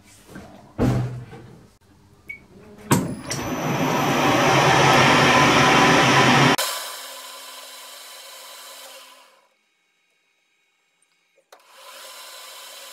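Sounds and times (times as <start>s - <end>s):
metal lathe motor hum: 2.8s - 6.6s.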